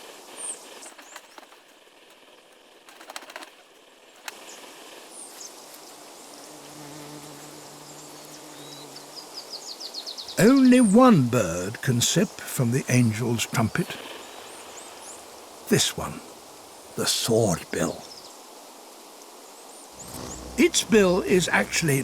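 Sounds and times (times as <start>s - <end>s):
hummingbird wings humming: 20.0s - 22.0s.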